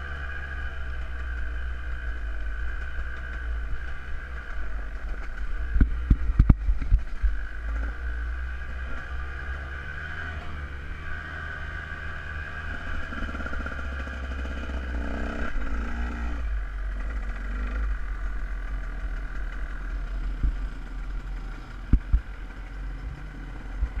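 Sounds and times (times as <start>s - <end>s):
dirt bike engine running: 0.0s - 24.0s
steady low rumble: 0.8s - 8.6s, 12.8s - 24.0s.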